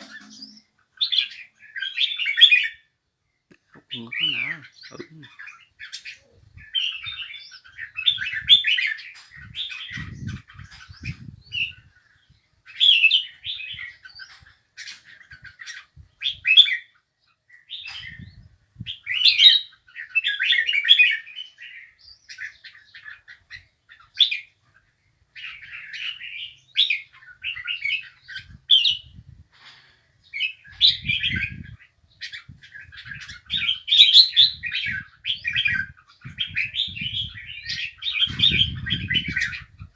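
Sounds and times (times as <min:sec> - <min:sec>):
songbird warbling: 0:00.0 - 0:02.8.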